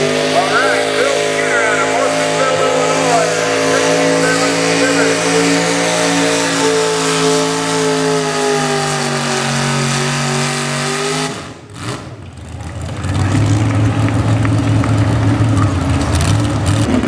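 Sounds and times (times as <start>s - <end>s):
engine idling: 0.0s - 17.0s
truck engine at high revs: 0.0s - 17.0s.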